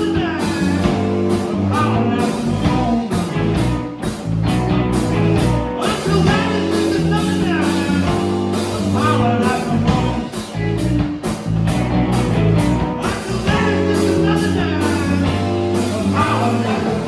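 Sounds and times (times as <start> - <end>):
blues-rock band playing: 0.0 - 17.0
electric guitar: 0.0 - 17.0.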